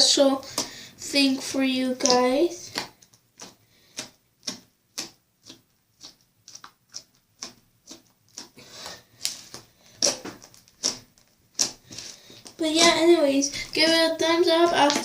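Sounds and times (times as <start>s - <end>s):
slime popping and clicking: 2.0s - 8.6s, 9.2s - 12.6s.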